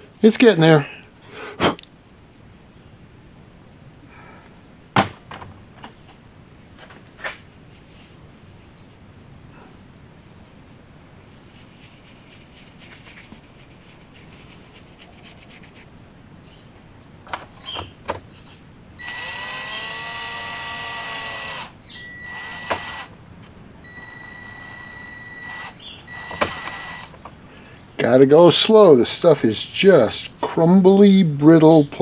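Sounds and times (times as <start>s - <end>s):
faint scratching: 7.2s - 15.9s
small electric motor whining: 19.0s - 23.1s, 23.9s - 27.1s.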